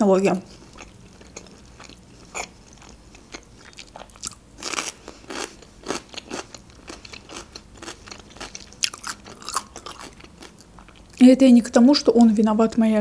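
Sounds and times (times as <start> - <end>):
cucumber crunching: 0.5 - 11.1.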